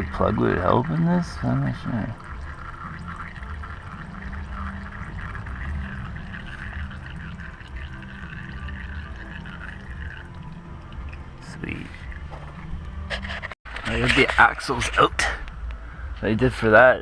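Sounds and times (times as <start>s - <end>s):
fluid pouring into a pan: 0.0s - 11.1s.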